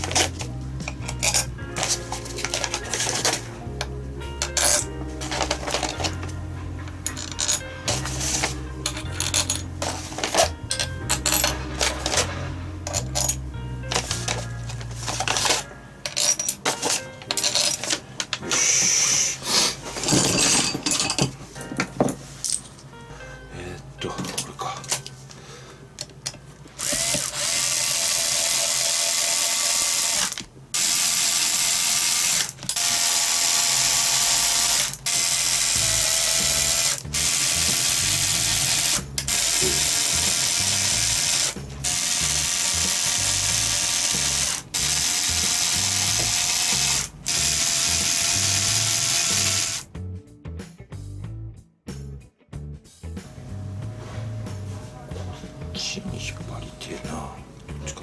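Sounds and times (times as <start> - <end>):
ratchet wrench clicking: 4.4 - 6.2, 26.8 - 49.9.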